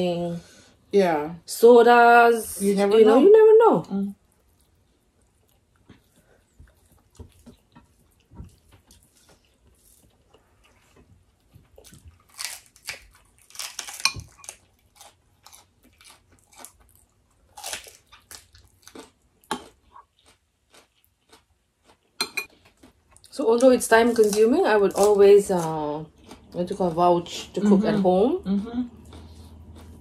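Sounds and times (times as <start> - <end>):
crunching lettuce bites: 11.7 - 23.3.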